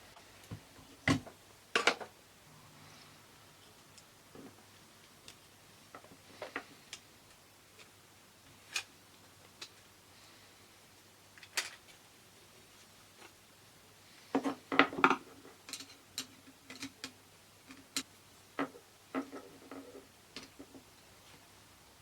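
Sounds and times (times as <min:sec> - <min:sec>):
small plastic parts clicking: 0:15.1 - 0:18.0.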